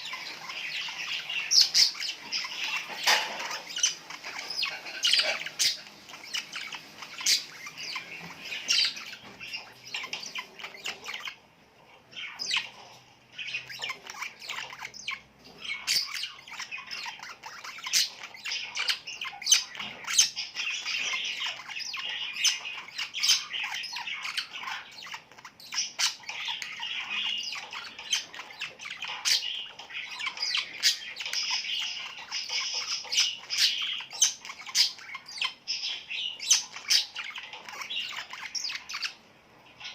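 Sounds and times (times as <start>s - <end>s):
small birds chirping and squawking: 0.0s - 39.9s.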